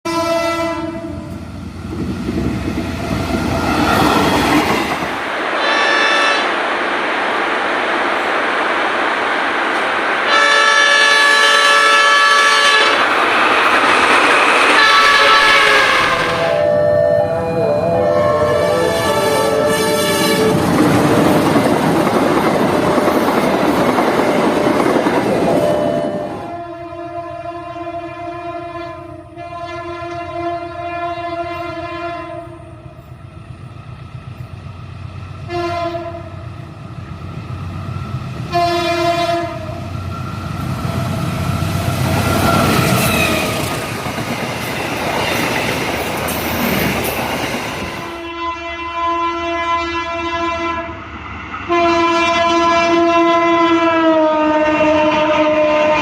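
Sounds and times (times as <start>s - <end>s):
train horn: 0.0s - 1.4s, 5.6s - 6.6s, 10.3s - 13.0s, 14.7s - 20.7s, 25.4s - 33.1s, 35.4s - 36.5s, 38.5s - 39.9s, 48.1s - 51.0s, 51.7s - 56.0s
train rushing past: 0.1s - 30.8s, 31.4s - 48.4s, 49.5s - 56.0s.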